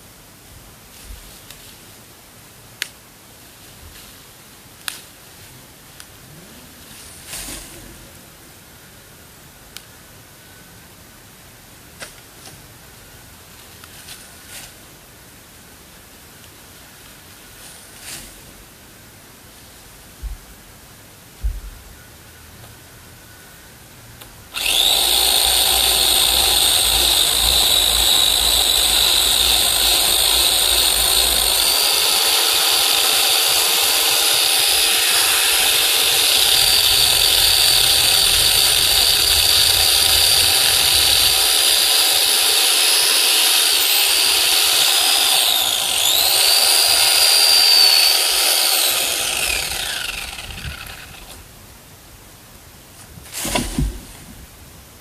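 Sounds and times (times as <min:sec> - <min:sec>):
electric chainsaw cutting wood: 0:24.6 - 0:51.4.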